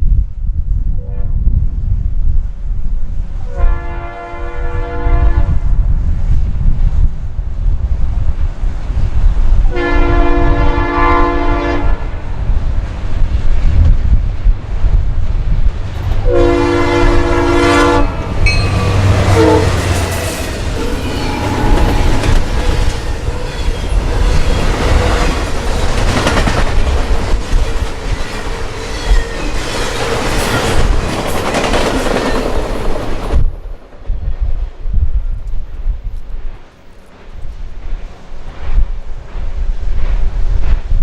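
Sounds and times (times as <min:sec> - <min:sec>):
locomotive horn blast: 0:03.5 - 0:05.6, 0:09.7 - 0:12.2, 0:16.2 - 0:24.2
train wheels clacking over rails: 0:18.2 - 0:33.5.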